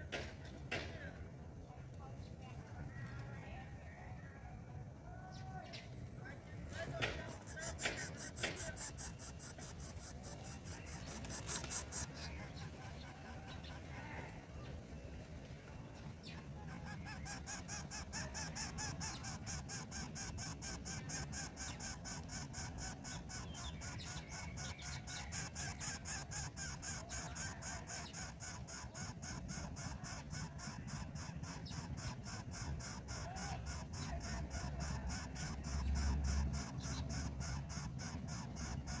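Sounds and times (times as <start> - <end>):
rapid pulsing animal calls: 7.2 - 14.4, 16.2 - 39.0.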